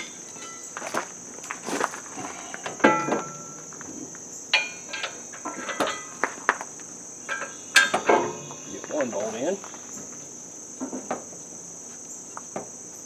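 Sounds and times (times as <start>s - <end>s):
metal clanks and clinks: 0.0s - 1.0s, 1.6s - 3.8s, 4.5s - 6.6s, 7.2s - 8.6s
high insect trill: 0.0s - 13.0s.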